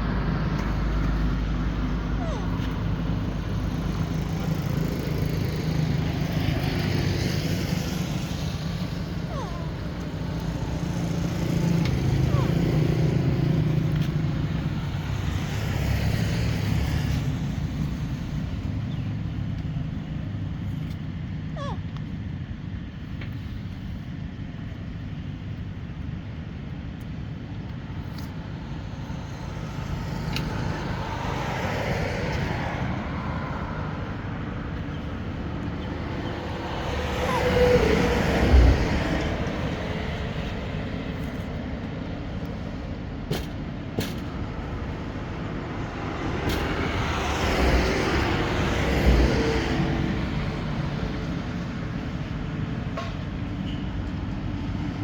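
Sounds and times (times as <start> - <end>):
low traffic rumble: 0.0 - 55.0
vehicles passing by: 0.0 - 55.0.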